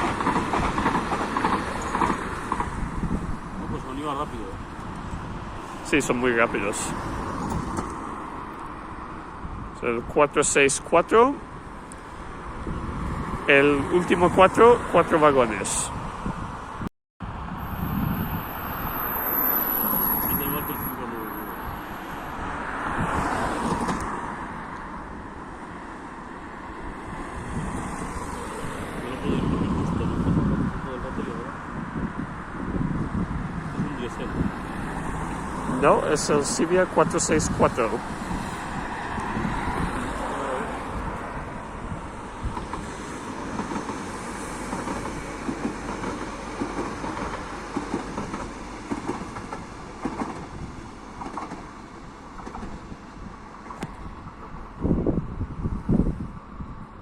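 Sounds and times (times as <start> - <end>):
wheels clacking over rail joints: 0.0 - 5.4, 34.3 - 54.6
electric train passing: 0.0 - 9.6, 11.0 - 55.7.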